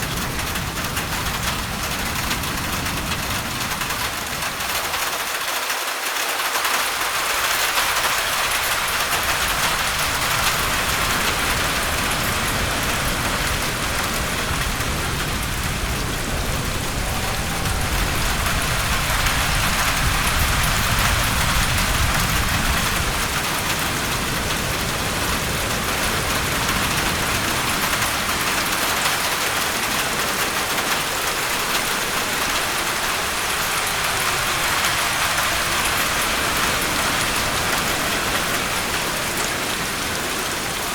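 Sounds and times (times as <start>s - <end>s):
heavy rain falling: 0.0s - 40.9s
low rumble: 9.1s - 25.3s.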